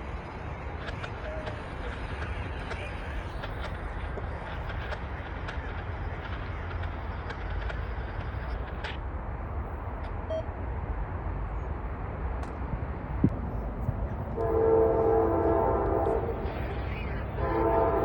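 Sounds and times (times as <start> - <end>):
wind rumble on microphone: 0.0 - 18.0
locomotive air horn chord: 14.4 - 16.5, 17.4 - 18.0.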